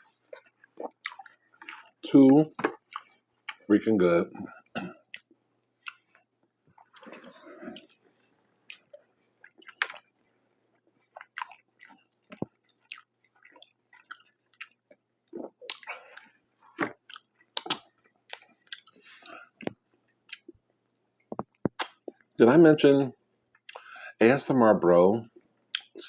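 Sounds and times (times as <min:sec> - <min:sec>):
wet mouth clicks and smacks: 0:00.0 - 0:02.0, 0:02.6 - 0:03.6, 0:05.0 - 0:07.9, 0:08.7 - 0:10.0, 0:11.2 - 0:14.8, 0:15.4 - 0:20.5, 0:21.2 - 0:22.4
chewing food: 0:00.0 - 0:03.7, 0:04.4 - 0:20.6.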